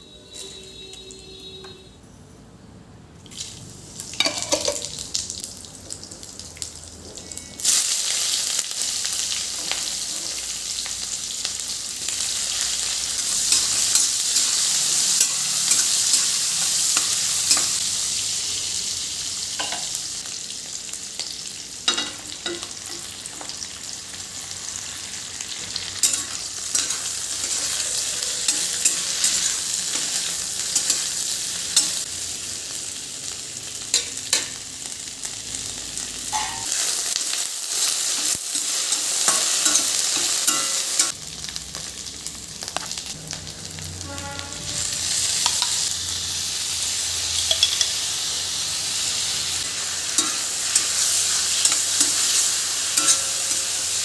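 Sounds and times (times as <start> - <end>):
food sizzling in hot oil: 3.3 - 54.0
utensil clinking in pan: 4.2 - 4.9, 38.9 - 41.1, 47.3 - 48.0, 50.2 - 53.9.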